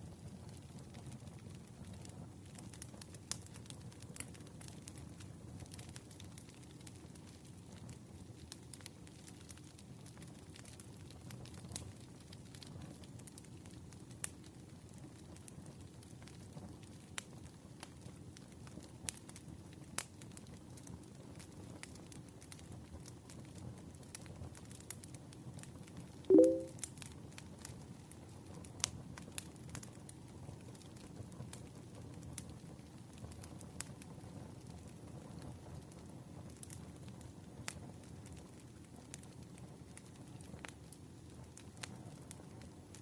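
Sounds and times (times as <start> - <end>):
campfire crackling and popping: 0.0 - 43.0
brief loud low tone: 26.3 - 26.7.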